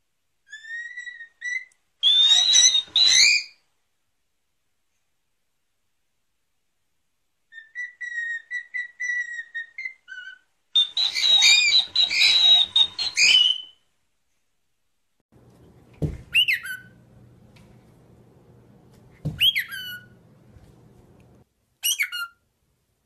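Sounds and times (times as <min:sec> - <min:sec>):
cockatiel chirps: 0:00.5 - 0:03.6, 0:07.5 - 0:13.8, 0:16.3 - 0:17.0, 0:19.3 - 0:20.2, 0:21.8 - 0:22.4
cockatiel squawking: 0:00.5 - 0:03.6, 0:07.5 - 0:13.7, 0:16.3 - 0:17.0, 0:19.3 - 0:20.2, 0:21.8 - 0:22.4
cockatiel whistling: 0:00.5 - 0:03.6, 0:07.5 - 0:13.8, 0:16.3 - 0:17.0, 0:19.3 - 0:20.2, 0:21.8 - 0:22.4.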